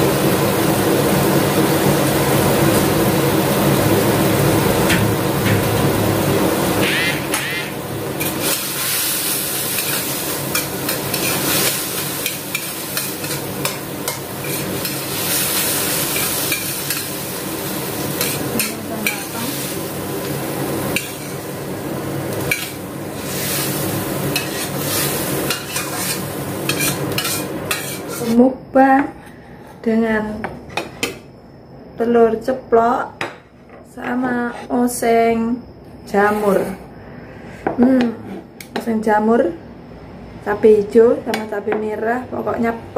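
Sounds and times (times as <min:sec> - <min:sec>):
food sizzling in a pan: 0:00.0 - 0:28.5
utensil scraping a pan: 0:06.8 - 0:17.2, 0:22.5 - 0:28.4.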